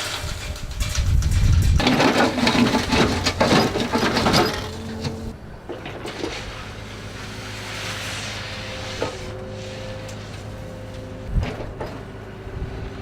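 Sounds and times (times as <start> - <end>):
crushed stone crunching and rattling: 0.0 - 6.5
machinery engine hum: 1.8 - 13.0.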